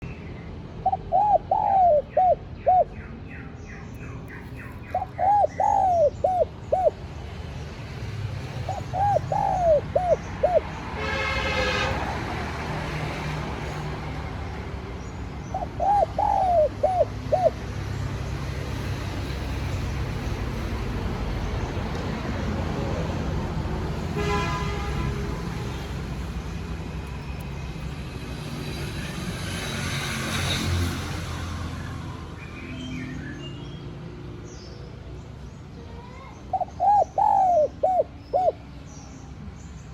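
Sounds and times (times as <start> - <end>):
dove cooing: 0.8 - 3.0, 4.4 - 7.1, 8.5 - 10.8, 15.4 - 17.7, 36.1 - 38.7.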